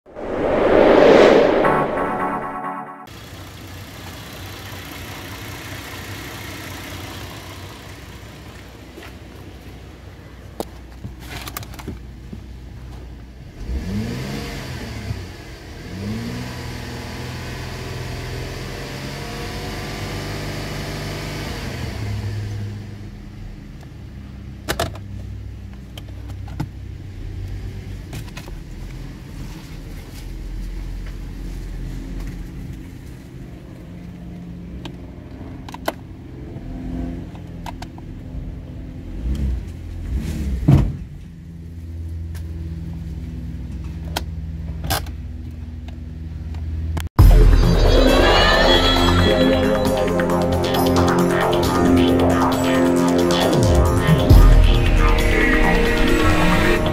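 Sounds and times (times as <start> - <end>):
car engine revving and idling: 3.2 - 10.1, 12.8 - 24.6.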